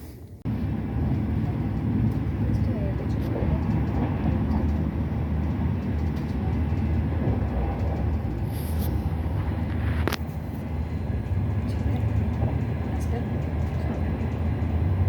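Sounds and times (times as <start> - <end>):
train rumble inside carriage: 0.0 - 15.0.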